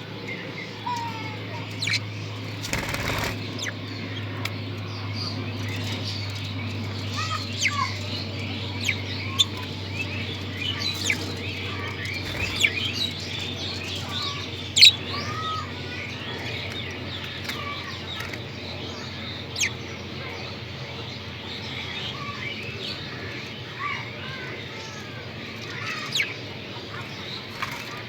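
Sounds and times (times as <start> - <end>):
budgerigars chattering: 0.3 - 28.0.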